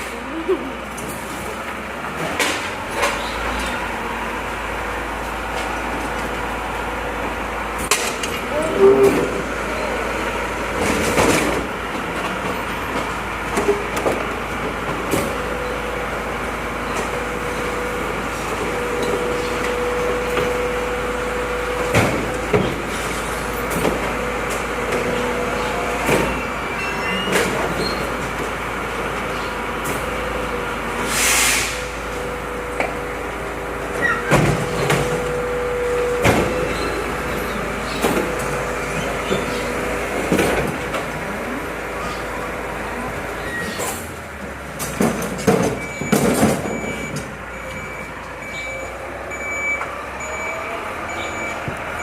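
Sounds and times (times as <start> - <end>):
truck engine running: 0.0 - 31.1, 31.8 - 52.0
short hiss: 31.1 - 31.8.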